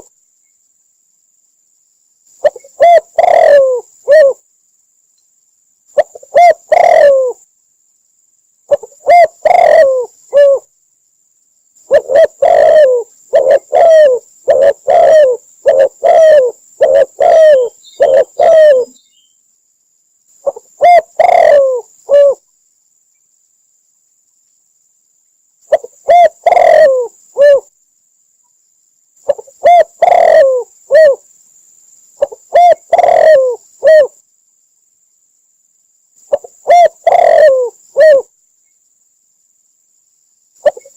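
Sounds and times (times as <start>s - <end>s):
dove cooing: 2.4s - 4.4s, 6.0s - 7.4s, 8.7s - 10.7s, 11.8s - 19.0s, 20.4s - 22.4s, 25.7s - 27.7s, 29.2s - 31.2s, 32.2s - 34.2s, 36.3s - 38.3s, 40.6s - 40.9s.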